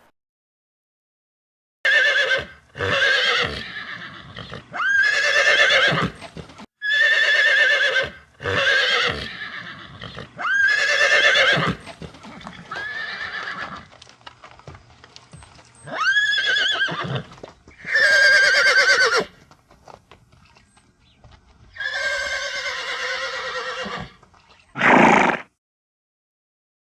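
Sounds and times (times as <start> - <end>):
horse whinnying: 1.9 - 13.9, 15.8 - 19.4, 21.7 - 25.5.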